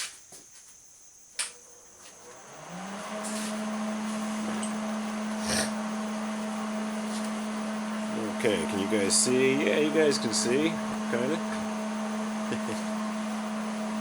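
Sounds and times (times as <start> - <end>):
electric motor humming: 1.7 - 14.0
air hissing: 3.1 - 5.9.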